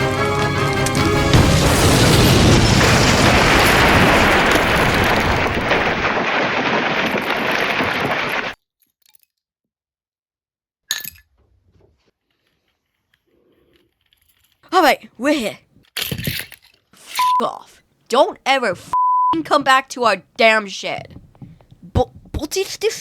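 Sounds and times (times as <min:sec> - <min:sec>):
sharp crack: 0:00.6 - 0:08.6
explosion with breaking debris: 0:00.8 - 0:08.6.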